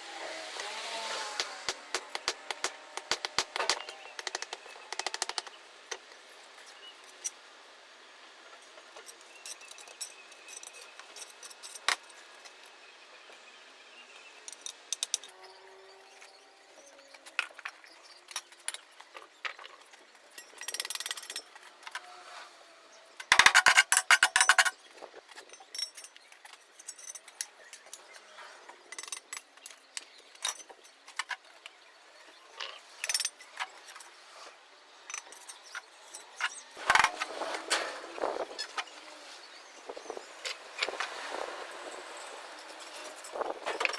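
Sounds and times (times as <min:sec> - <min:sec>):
hand tools clinking and scraping: 0:08.5 - 0:12.6, 0:14.4 - 0:22.5, 0:23.1 - 0:39.4, 0:40.0 - 0:43.9.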